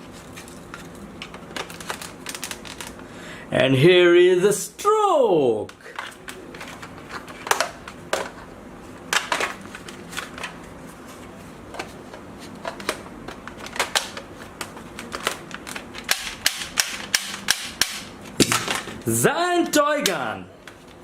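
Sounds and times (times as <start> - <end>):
plastic toy gun clicks and knocks: 15.1 - 18.9.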